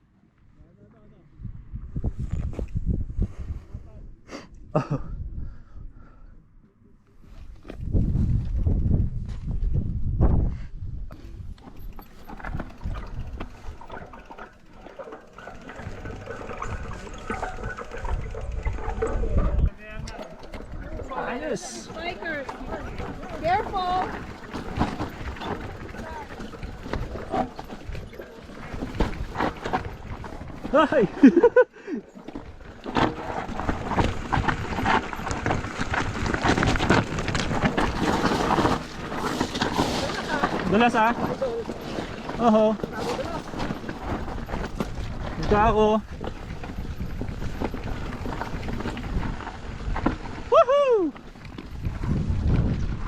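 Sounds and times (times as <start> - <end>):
footsteps on rough trail: 7.2 - 10.5, 11.1 - 53.0
pushed bike clattering: 11.1 - 53.0.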